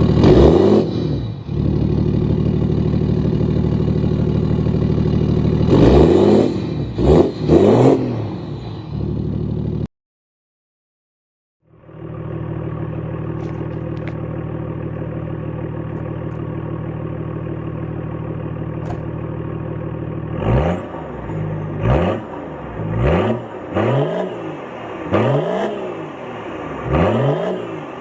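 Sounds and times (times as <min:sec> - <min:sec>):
diesel engine idling: 0:00.9 - 0:07.0, 0:11.7 - 0:23.6
engine revving in short blips: 0:18.8 - 0:19.3.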